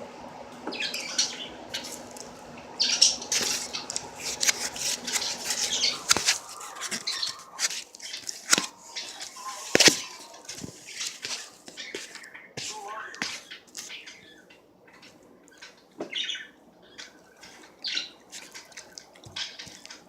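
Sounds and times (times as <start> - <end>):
chewing with wet mouth noises: 18.3 - 20.0.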